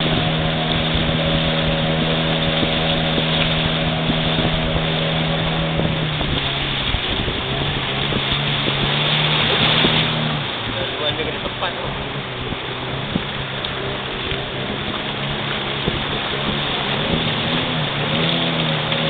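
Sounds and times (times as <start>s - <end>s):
motorboat engine running: 0.0s - 19.0s
wind and water rushing: 0.0s - 19.0s.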